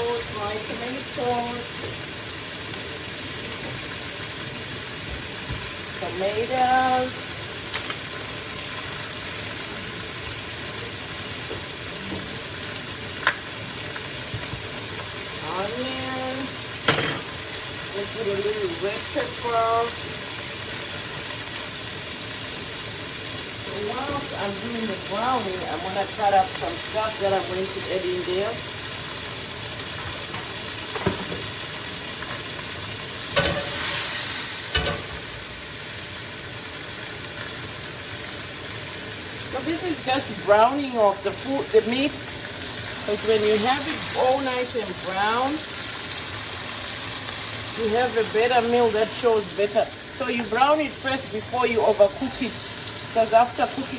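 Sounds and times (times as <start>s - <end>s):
chicken sizzling in hot oil: 0.0s - 53.9s.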